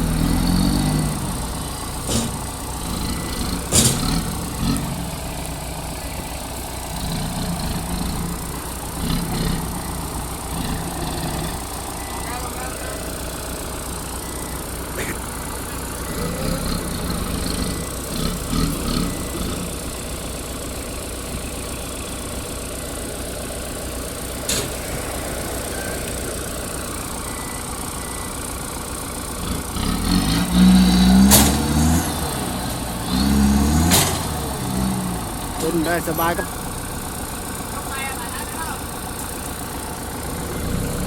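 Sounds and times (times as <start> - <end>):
tractor diesel engine running: 0.0 - 41.0
sharp knocks: 3.7 - 4.2.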